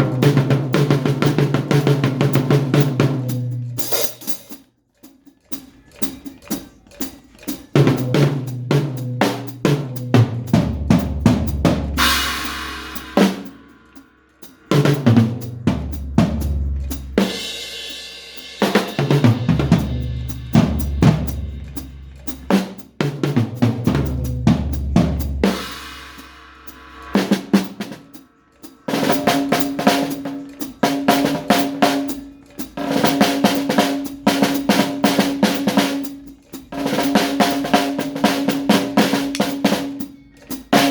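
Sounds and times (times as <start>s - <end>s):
drum beat: 0.0s - 40.9s
cymbal crashes: 11.4s - 36.2s
steady held tone: 12.0s - 23.0s, 23.8s - 32.8s
deep bass notes: 13.8s - 17.5s, 23.4s - 29.9s.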